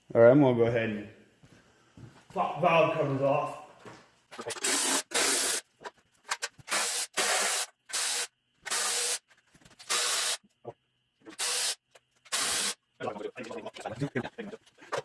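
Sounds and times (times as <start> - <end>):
air tool hissing bursts: 4.5 - 5.6, 6.7 - 9.2, 9.8 - 10.4, 11.4 - 12.8.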